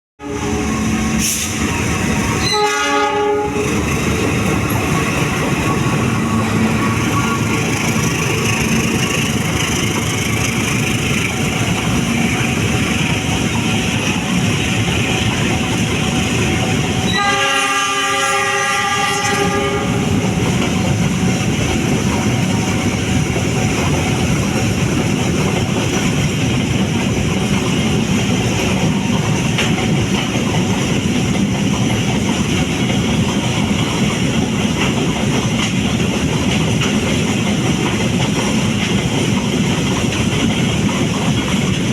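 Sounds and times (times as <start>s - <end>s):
locomotive horn: 0.2s - 1.6s, 2.4s - 3.8s, 17.0s - 20.2s
train wheels clattering on rails: 0.4s - 41.9s.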